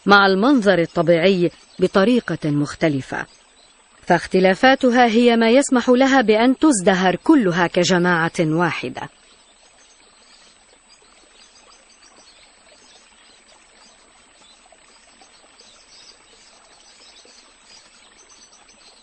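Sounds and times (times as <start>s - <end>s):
outdoor ambient hiss: 0.0s - 19.0s.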